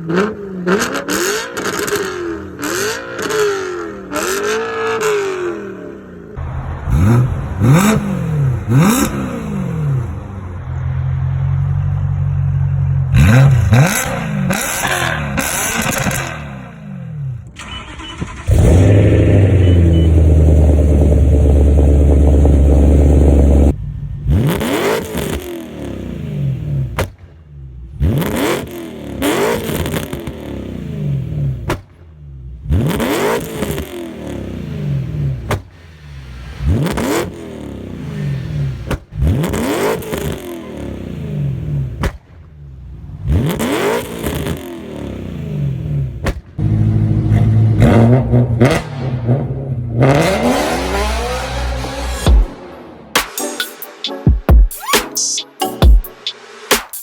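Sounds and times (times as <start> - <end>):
car engine revving: 0.0 - 53.4.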